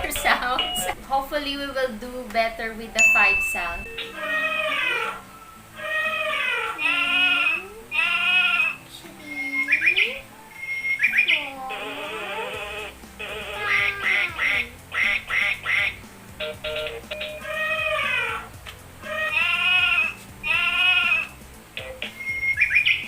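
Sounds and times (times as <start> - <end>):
light background music: 0.0 - 23.0
duck quacks: 12.2 - 16.8.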